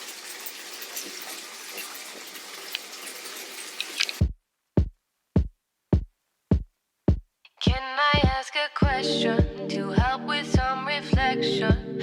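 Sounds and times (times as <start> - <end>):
water spraying: 0.0 - 4.2
music with kick-drum beat: 4.2 - 12.0.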